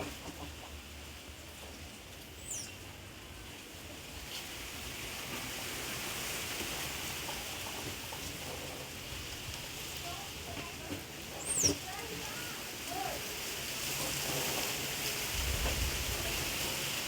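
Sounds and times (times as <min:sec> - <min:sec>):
outdoor background hiss: 0:00.0 - 0:17.0
high bird chirp: 0:02.4 - 0:02.8, 0:11.4 - 0:11.8.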